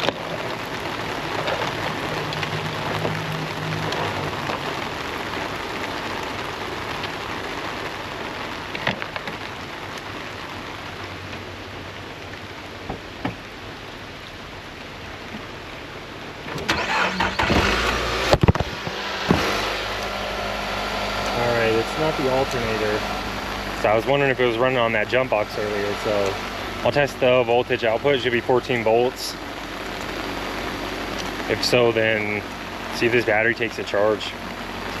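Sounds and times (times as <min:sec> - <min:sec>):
car engine cranking and running: 0:00.0 - 0:06.0, 0:16.4 - 0:35.0
heavy rain falling: 0:00.0 - 0:35.0.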